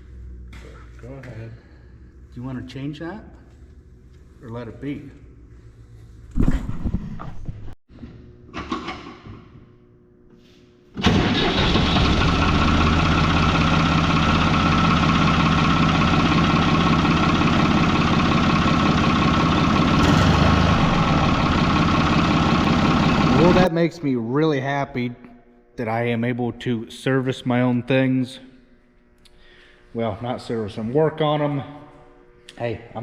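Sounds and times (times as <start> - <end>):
tractor engine running: 11.0 - 23.7.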